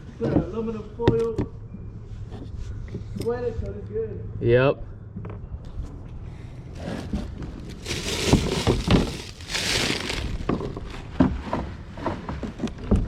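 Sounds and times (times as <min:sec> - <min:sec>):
crinkling and rustling: 0:06.8 - 0:12.8.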